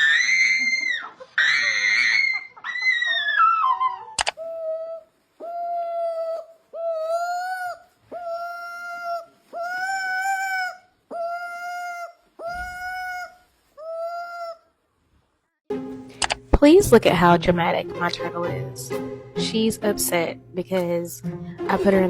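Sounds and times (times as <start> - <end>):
animal crying out: 0.0 - 14.7.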